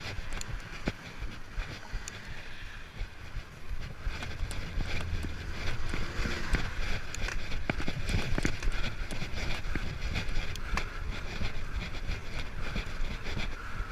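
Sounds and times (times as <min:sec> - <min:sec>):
mountain bike clicks and rattles: 0:00.0 - 0:13.9
wind buffeting microphone: 0:00.0 - 0:13.9.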